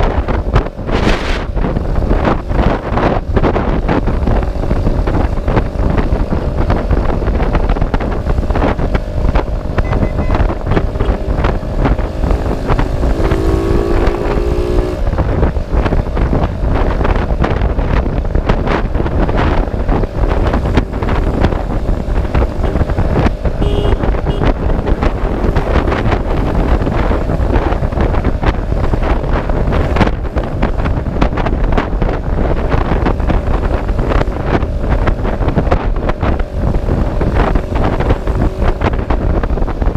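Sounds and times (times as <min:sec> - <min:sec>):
faint engine hum: 0:00.0 - 0:39.9
wind rushing over microphone: 0:00.0 - 0:39.9
short pitched tone: 0:09.8 - 0:11.6, 0:23.6 - 0:24.5.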